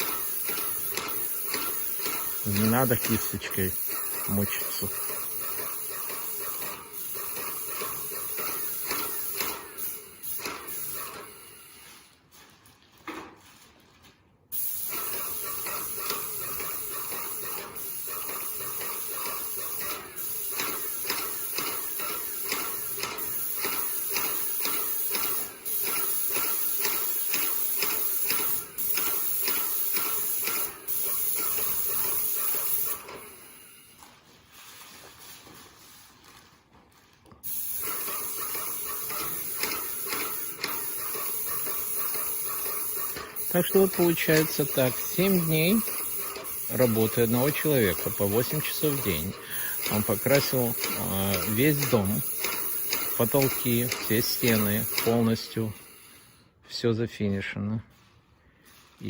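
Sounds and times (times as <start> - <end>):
fast regular ticking: 0.0 - 11.0, 14.6 - 33.2, 37.5 - 55.8
spray gun hissing: 0.0 - 11.9, 14.6 - 34.0, 37.4 - 56.4.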